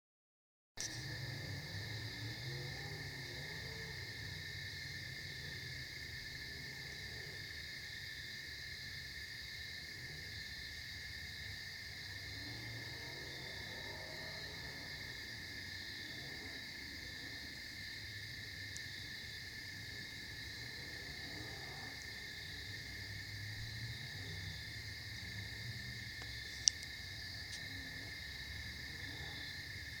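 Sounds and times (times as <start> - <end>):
crickets chirring: 0.8 - 30.0
distant race cars droning: 1.1 - 4.5, 12.1 - 17.6.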